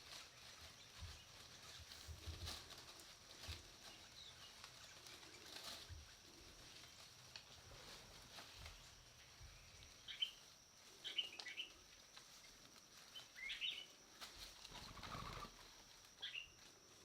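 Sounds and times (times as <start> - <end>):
soft rustle: 0.0 - 17.0
bird chirps: 8.8 - 11.8, 12.4 - 14.0, 16.2 - 16.6.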